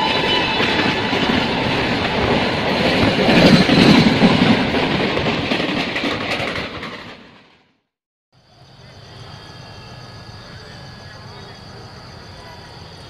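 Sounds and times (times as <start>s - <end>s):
freight train rumbling and clattering: 0.0s - 7.7s.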